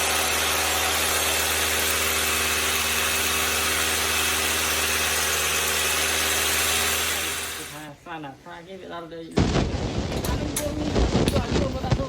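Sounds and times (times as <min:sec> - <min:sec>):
electric motor humming and hissing: 0:00.0 - 0:07.9.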